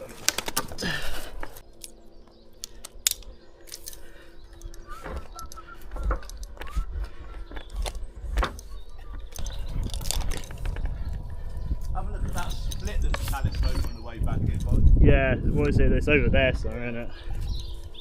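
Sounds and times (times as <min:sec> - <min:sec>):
metal climbing hardware clinking: 0:02.6 - 0:06.7, 0:07.5 - 0:11.2, 0:12.3 - 0:15.0.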